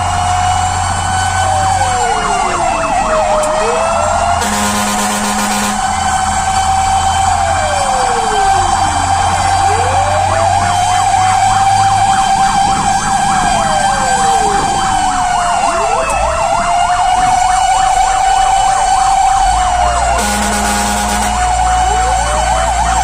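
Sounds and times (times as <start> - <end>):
fire truck engine running: 0.0 - 23.0
wailing siren: 0.0 - 23.0
warbling siren yelp: 0.0 - 23.0
short horn blast: 4.4 - 6.0, 20.2 - 21.7.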